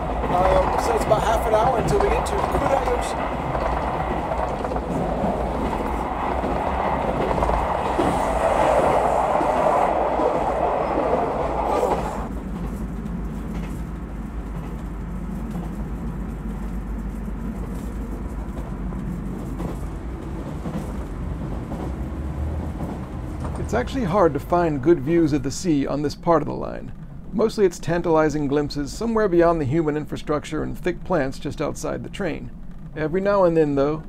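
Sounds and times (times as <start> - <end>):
wheel clatter on rails: 0.0 - 25.4
train running rumble: 0.0 - 34.0.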